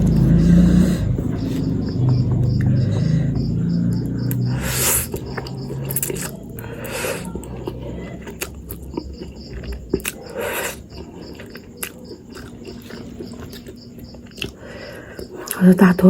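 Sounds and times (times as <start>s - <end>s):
breathy bursts: 0.0s - 1.8s, 2.6s - 5.3s
person chewing noodles: 0.0s - 15.6s.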